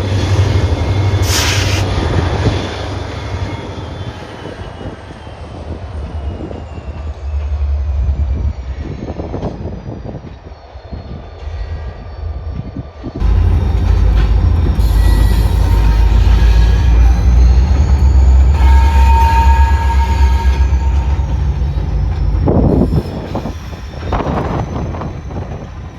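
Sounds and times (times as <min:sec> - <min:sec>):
diesel locomotives running: 0:00.0 - 0:25.9
thin high falling tone: 0:13.2 - 0:25.5.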